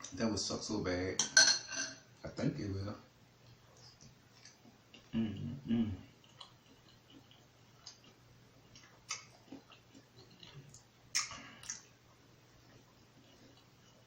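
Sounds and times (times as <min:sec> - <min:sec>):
quiet chewing: 0:03.4 - 0:14.0
mouth smacks: 0:08.8 - 0:11.9
wet mouth clicks: 0:08.8 - 0:11.9.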